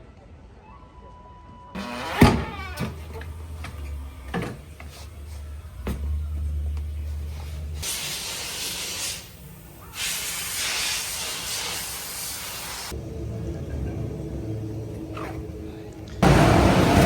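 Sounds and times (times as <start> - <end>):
compressed air hissing: 7.3 - 13.0.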